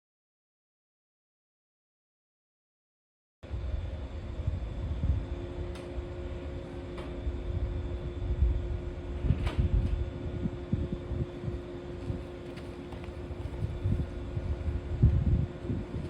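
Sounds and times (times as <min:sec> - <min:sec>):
low rumble: 0:03.4 - 0:16.0
steady two-tone mechanical hum: 0:03.4 - 0:16.0.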